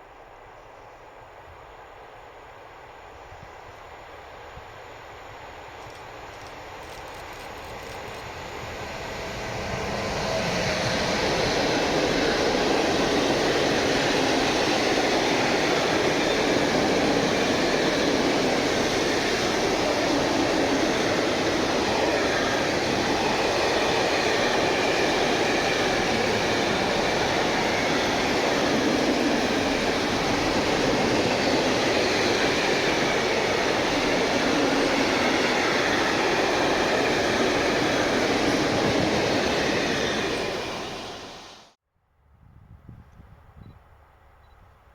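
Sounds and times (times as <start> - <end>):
train rolling past on track: 0.0 - 41.8.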